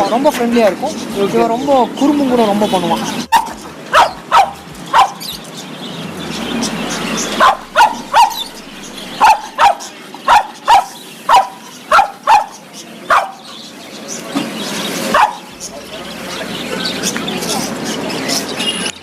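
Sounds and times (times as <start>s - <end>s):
dog barking: 3.3s - 5.4s, 7.1s - 13.5s, 15.1s - 15.5s.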